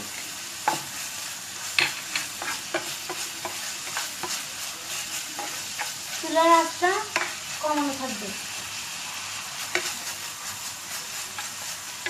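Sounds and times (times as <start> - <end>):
food sizzling in a pan: 0.0 - 12.0
utensil scraping and clicking on pan: 1.7 - 4.4, 5.3 - 6.3, 7.0 - 7.9, 9.6 - 10.2, 11.0 - 12.0.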